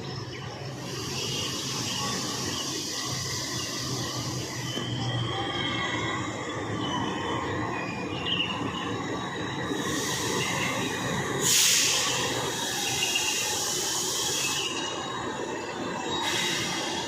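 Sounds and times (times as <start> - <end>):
train wheels rumbling on rails: 0.0 - 17.0
rushing hiss: 9.7 - 14.9, 16.2 - 17.0.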